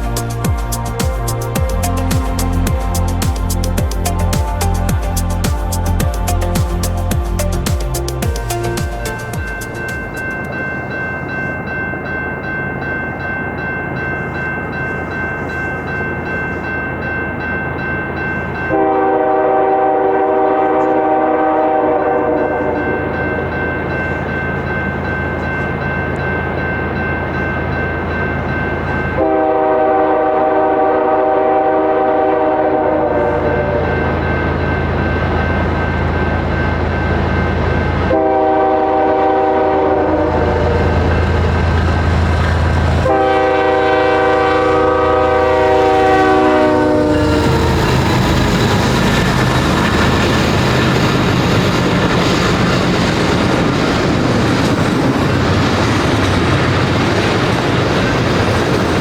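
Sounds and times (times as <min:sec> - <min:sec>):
passing train rumble: 0:00.0 - 0:59.0
locomotive air horn blasts: 0:18.7 - 0:23.1, 0:29.2 - 0:34.0, 0:38.1 - 0:41.1, 0:43.0 - 0:48.2.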